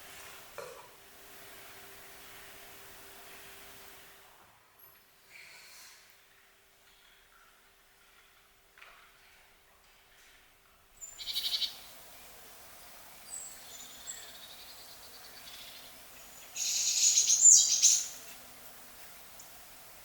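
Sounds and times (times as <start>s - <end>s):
outdoor background: 0.0s - 20.0s
bird rapid trill: 11.0s - 11.9s, 13.3s - 18.2s
faint high bird chirps: 11.0s - 11.9s, 13.2s - 18.2s.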